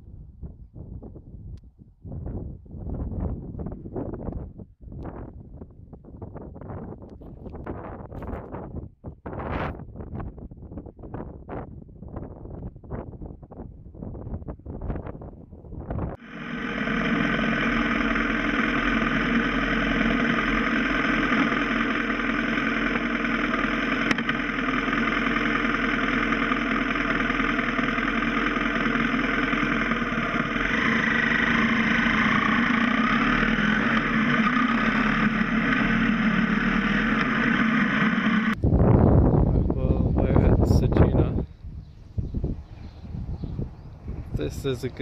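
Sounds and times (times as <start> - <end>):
motorcycle engine running: 16.2 - 38.8
road and wind noise: 25.5 - 45.0.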